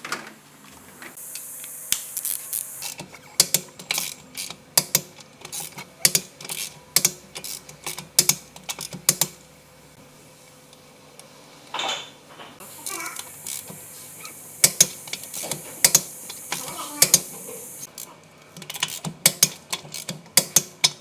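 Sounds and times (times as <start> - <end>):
sharp mechanical clicks: 1.4 - 9.4, 14.5 - 18.0
ratchet sounds: 1.4 - 9.5, 12.6 - 21.0.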